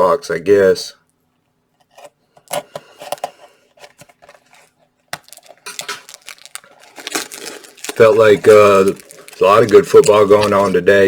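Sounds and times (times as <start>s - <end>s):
packaging crackling and clicking: 4.0s - 10.9s.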